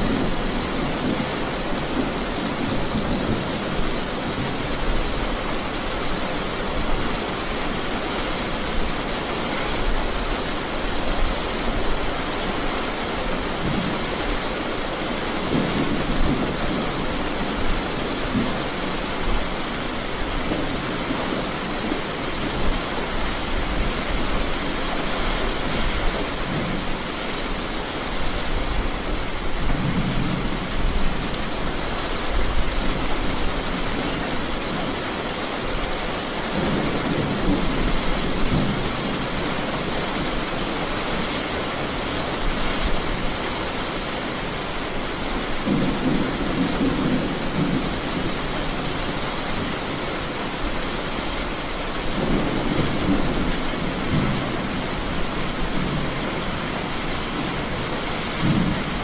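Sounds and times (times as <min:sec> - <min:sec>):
heavy rain: 0:00.0 - 0:59.0
thunder rumbling: 0:52.0 - 0:59.0.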